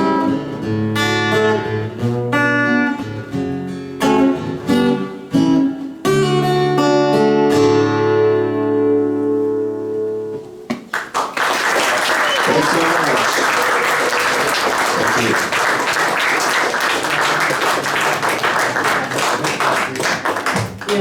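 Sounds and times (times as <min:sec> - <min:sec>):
acoustic guitar chords: 0:00.0 - 0:10.9, 0:12.2 - 0:21.0
audience applause: 0:10.9 - 0:21.0.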